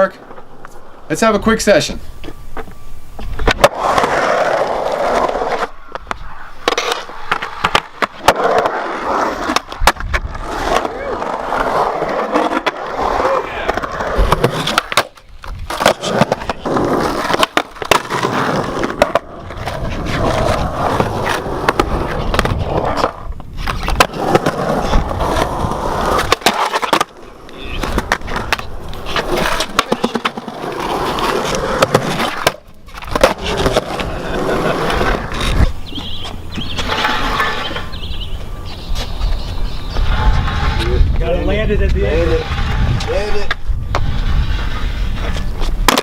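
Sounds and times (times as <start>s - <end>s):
skateboard wheels rolling on concrete: 0.0s - 46.0s
skateboard clacks: 3.4s - 37.9s, 45.3s - 46.0s.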